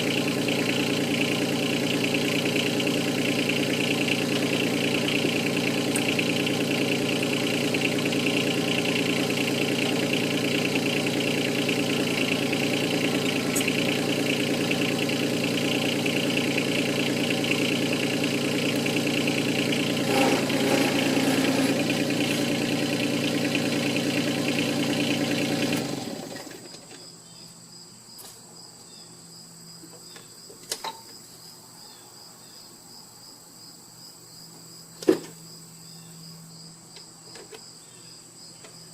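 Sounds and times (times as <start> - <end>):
diesel tractor engine running: 0.0 - 26.9
faint cricket chirping: 26.5 - 38.9.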